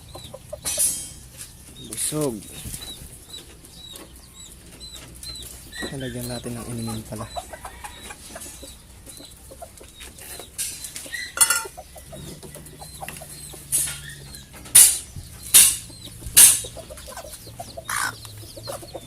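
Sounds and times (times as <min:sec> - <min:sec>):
chickens clucking: 0:00.0 - 0:19.0
dish knocked and scraped: 0:11.4 - 0:11.7.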